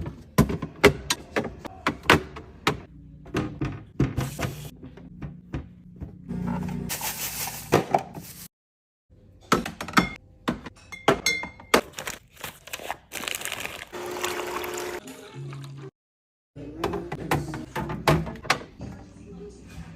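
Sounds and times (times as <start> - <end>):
glass containers clinking: 9.9 - 11.8.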